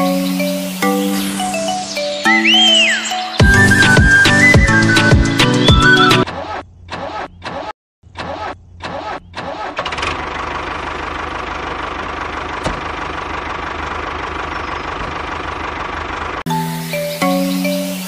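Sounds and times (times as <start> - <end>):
small engine starting and idling: 8.8 - 16.5.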